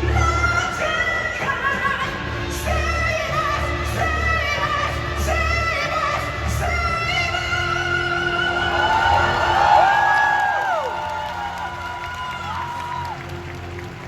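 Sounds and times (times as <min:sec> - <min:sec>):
man singing a long high note: 0:00.0 - 0:10.4.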